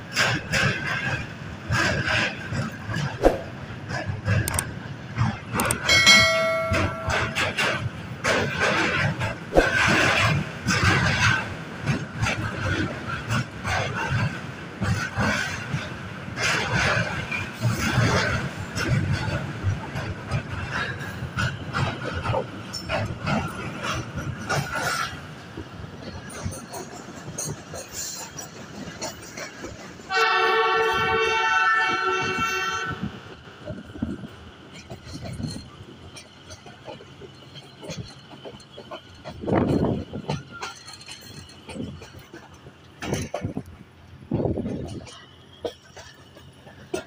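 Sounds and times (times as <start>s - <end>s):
train clacks and thumps: 0.0s - 47.0s
train wheels rumbling on rails: 0.0s - 47.0s
train horn blast: 30.1s - 33.2s.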